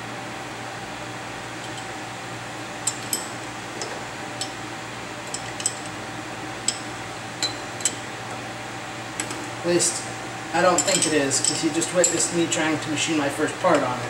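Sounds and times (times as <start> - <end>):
sharp metallic clinks: 10.6 - 12.4.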